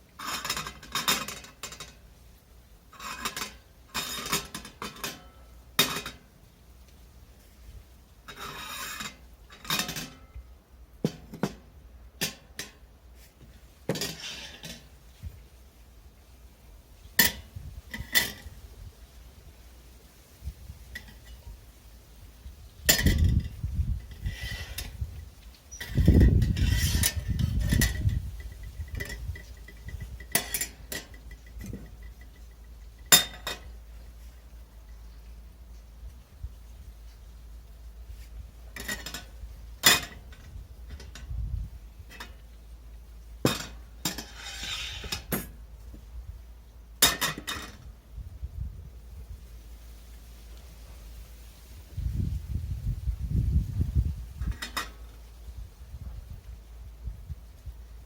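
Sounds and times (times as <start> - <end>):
heavier bumps and handling noise: 11.0 - 15.4.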